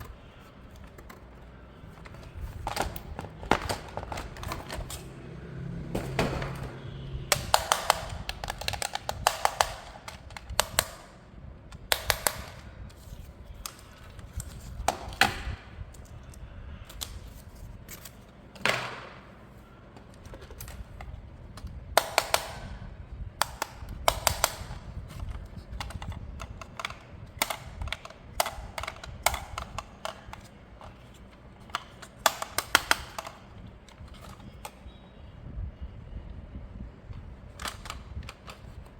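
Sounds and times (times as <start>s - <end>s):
plastic toy parts clicking: 0.0s - 1.3s, 7.3s - 11.1s, 11.7s - 17.3s, 23.4s - 34.8s, 37.5s - 38.9s.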